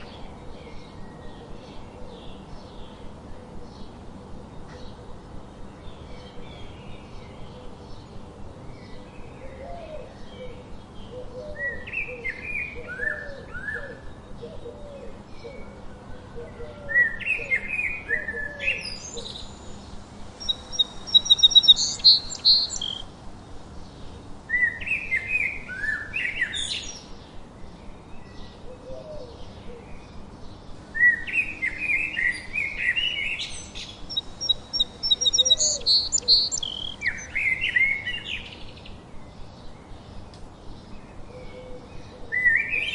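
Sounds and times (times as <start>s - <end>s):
low repeated bird notes: 0.0s - 23.1s, 28.6s - 42.9s
songbirds singing: 0.0s - 42.9s
loud high bird trill: 20.4s - 23.1s, 31.0s - 38.5s.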